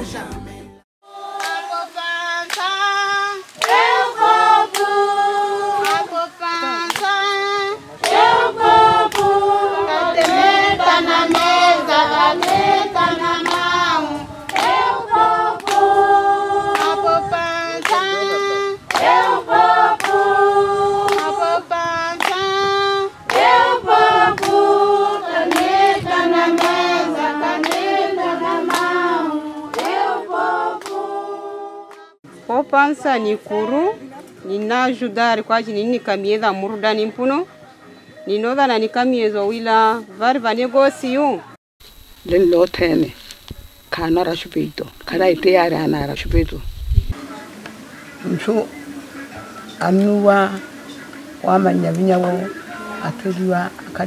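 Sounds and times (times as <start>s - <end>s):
group of voices singing: 0.0s - 32.2s
hand clapping: 1.4s - 1.7s, 2.5s - 2.7s, 3.6s - 4.0s, 4.7s - 4.9s, 5.8s - 6.1s, 6.8s - 7.2s, 8.0s - 8.2s, 9.1s - 9.3s, 10.2s - 10.4s, 11.3s - 11.6s, 12.4s - 12.6s, 13.4s - 13.7s, 14.5s - 14.8s, 15.6s - 15.9s, 16.7s - 17.0s, 17.8s - 19.4s, 20.0s - 20.2s, 21.0s - 21.4s, 22.2s - 22.5s, 25.4s - 26.8s, 27.6s - 27.9s, 28.6s - 29.0s, 29.7s - 30.0s.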